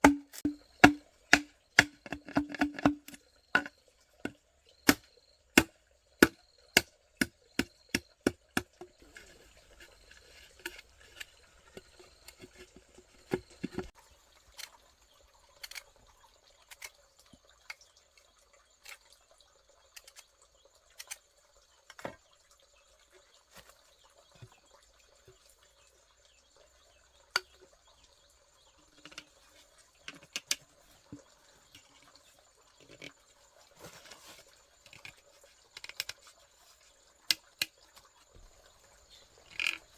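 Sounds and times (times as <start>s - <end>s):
sharp knocks or chops: 0.0s - 3.0s.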